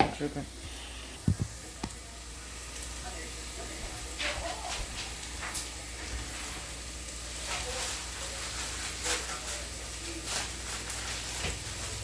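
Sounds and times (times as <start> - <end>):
food sizzling in a pan: 0.0 - 12.0
small crackles and pops: 3.9 - 12.0.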